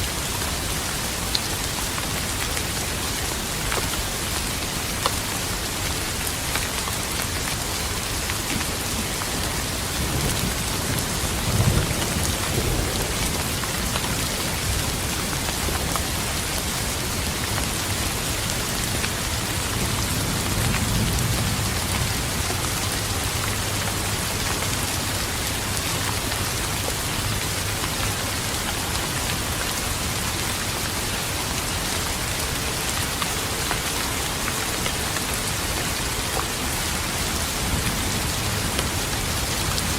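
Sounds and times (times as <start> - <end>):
rain falling: 0.0 - 39.9
thunder rumbling: 9.8 - 15.2.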